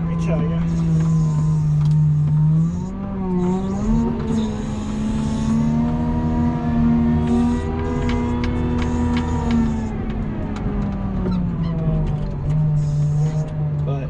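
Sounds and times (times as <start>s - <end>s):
snow plow engine under load: 0.0s - 14.0s.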